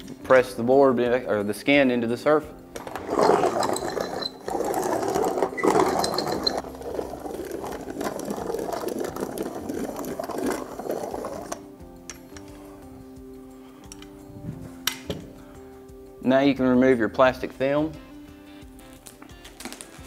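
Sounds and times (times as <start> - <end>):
hand roller clattering: 2.8 - 11.7.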